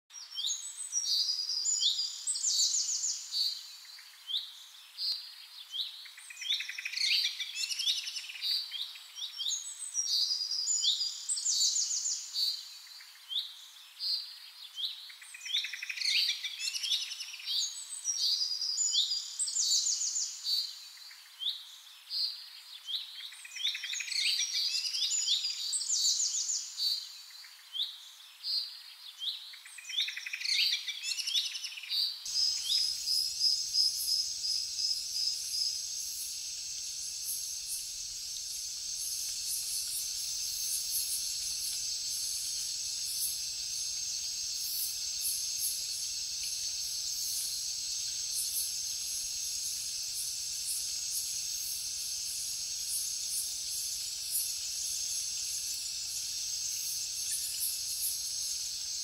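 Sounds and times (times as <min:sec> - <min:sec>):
faint steady hiss: 0:00.1 - 0:59.0
birds chirping and trilling: 0:29.8 - 0:49.9.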